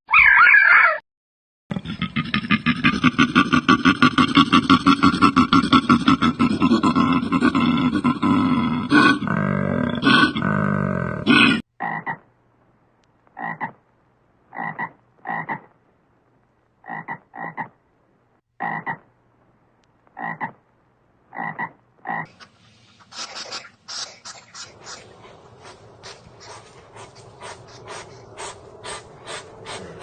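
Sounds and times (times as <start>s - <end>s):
animal croaking calls: 1.7s - 12.2s, 13.4s - 13.8s, 14.5s - 15.7s, 16.8s - 17.8s, 20.2s - 20.6s, 21.3s - 30.0s.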